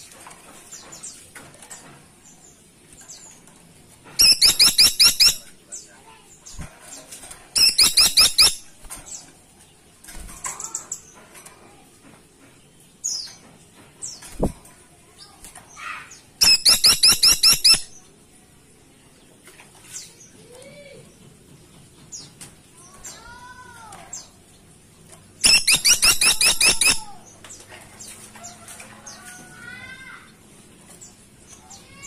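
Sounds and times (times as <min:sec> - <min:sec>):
woodpecker ringing call notes: 0:04.2 - 0:05.4, 0:16.4 - 0:17.9, 0:25.4 - 0:27.1
faint bird chirps: 0:25.4 - 0:27.2.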